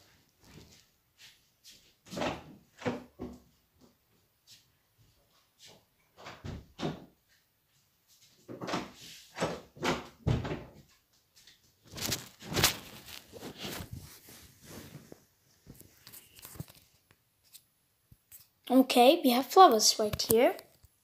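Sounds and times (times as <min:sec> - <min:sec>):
book pages rustling: 0:11.8 - 0:17.6.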